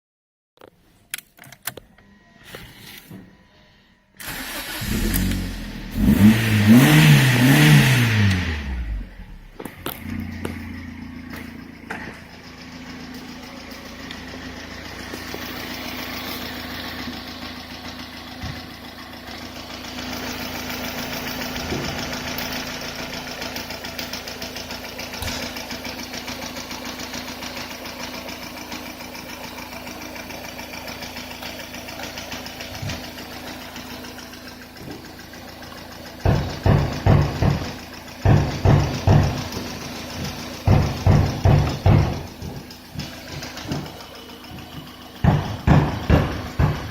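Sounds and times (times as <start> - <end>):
car engine idling: 3.8 - 46.9
faint engine knocks: 34.7 - 46.9.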